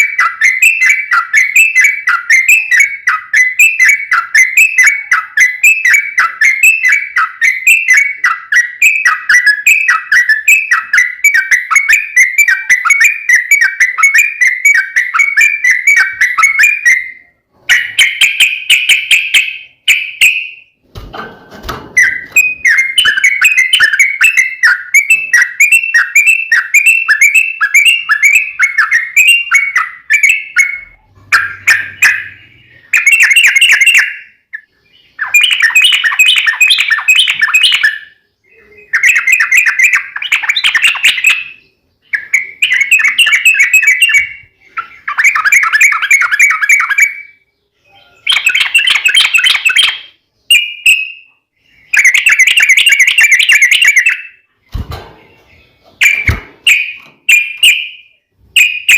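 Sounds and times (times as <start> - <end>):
bird singing bubbly notes: 22.0 - 58.9.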